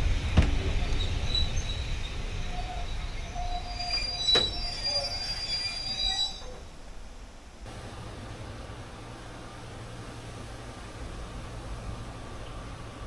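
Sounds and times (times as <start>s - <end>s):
train wheels squealing on rails: 0.6s - 6.8s.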